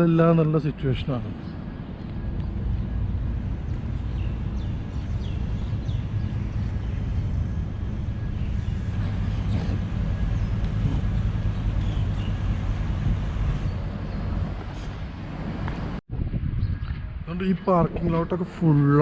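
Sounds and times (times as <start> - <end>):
street ambience rumble: 0.0 - 19.0.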